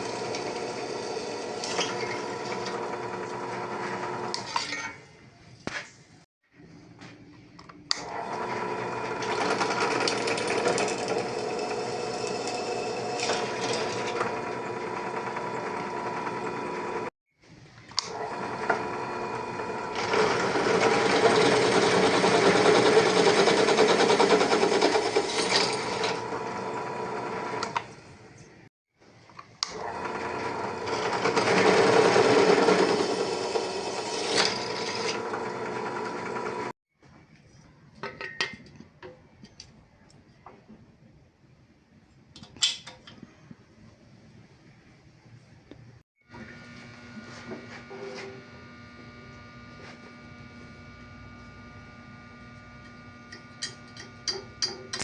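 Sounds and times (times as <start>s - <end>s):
small machine motor running: 0.0s - 4.4s, 8.1s - 17.1s, 18.1s - 27.9s, 29.7s - 36.8s, 46.3s - 55.0s.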